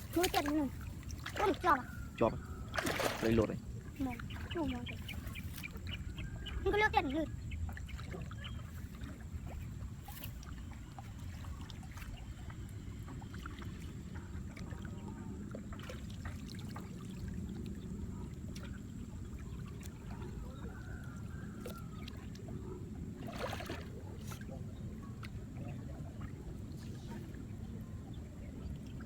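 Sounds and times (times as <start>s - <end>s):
small clicks and splashes: 0.0s - 6.0s, 7.7s - 22.6s, 23.2s - 24.5s
shallow water trickling and sloshing: 0.0s - 29.0s.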